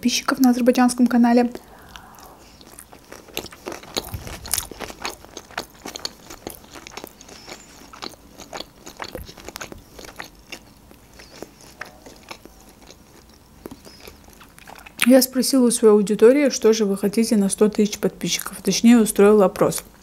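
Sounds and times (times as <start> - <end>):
person chewing with crunches: 1.4 - 15.1.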